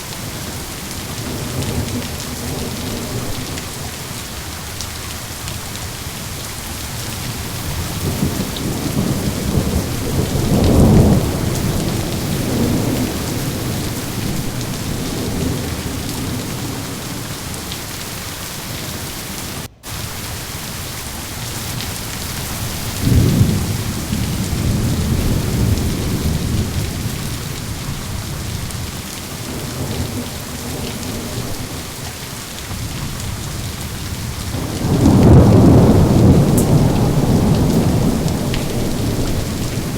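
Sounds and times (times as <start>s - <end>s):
heavy rain hissing: 0.0s - 39.9s
rolling thunder: 0.4s - 4.6s, 6.8s - 17.8s, 21.7s - 32.1s, 32.7s - 39.9s.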